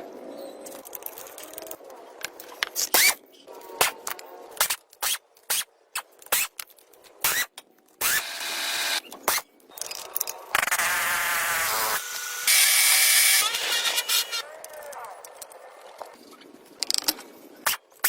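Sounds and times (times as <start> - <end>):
power tool running: 8.0 - 9.0, 10.6 - 14.4.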